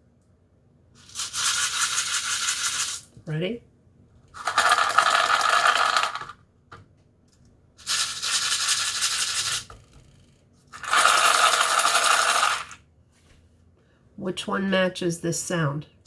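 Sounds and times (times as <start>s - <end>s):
dry food rattling in plastic cup: 1.0s - 3.1s, 4.4s - 6.3s, 10.7s - 12.8s.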